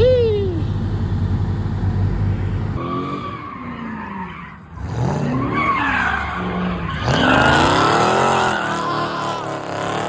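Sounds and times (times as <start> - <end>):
tyres squealing and skidding: 2.8 - 10.0.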